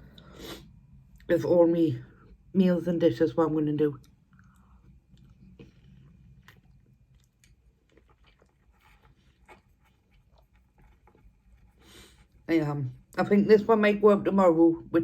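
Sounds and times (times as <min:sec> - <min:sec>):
low steady hum: 0:00.0 - 0:15.0
faint chewing: 0:03.9 - 0:13.2.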